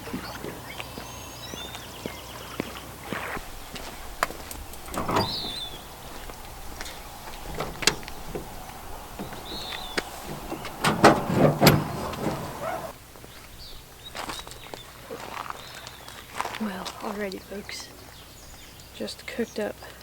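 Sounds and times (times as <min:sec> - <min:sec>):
cooking gear clicking and knocking: 0:04.2 - 0:12.6.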